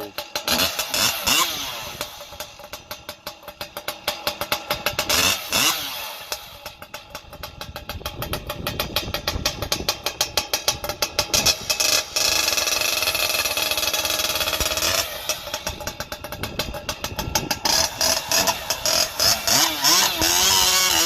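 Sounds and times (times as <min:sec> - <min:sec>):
chainsaw running unevenly: 0:00.0 - 0:21.0.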